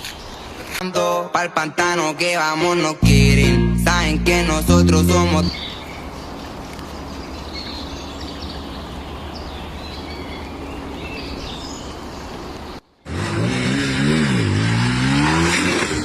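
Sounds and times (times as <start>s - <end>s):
birds chirping: 4.5s - 13.2s
motorcycle engine revving: 13.1s - 16.0s.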